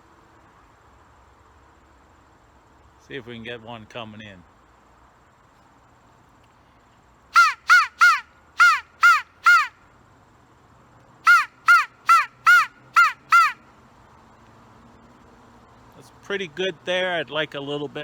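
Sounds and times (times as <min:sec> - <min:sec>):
crow call caws: 0:07.4 - 0:09.8, 0:11.2 - 0:13.6.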